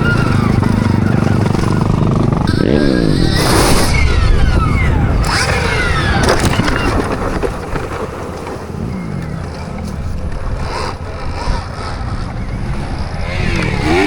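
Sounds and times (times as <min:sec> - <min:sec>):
motorcycle engine revving: 0:00.0 - 0:14.0
wind noise on microphone: 0:00.0 - 0:14.0.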